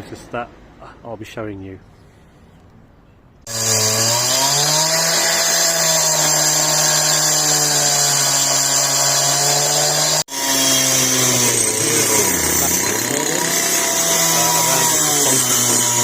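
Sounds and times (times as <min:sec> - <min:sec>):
power tool cutting concrete: 0:03.4 - 0:16.0.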